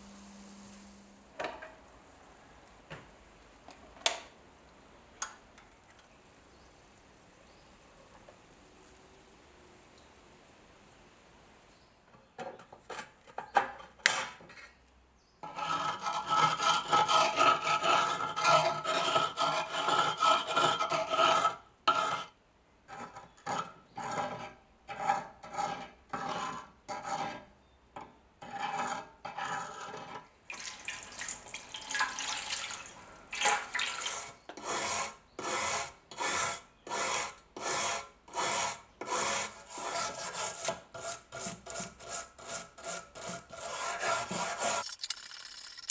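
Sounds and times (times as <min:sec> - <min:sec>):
hand scraping rusty steel: 0:34.1 - 0:44.9.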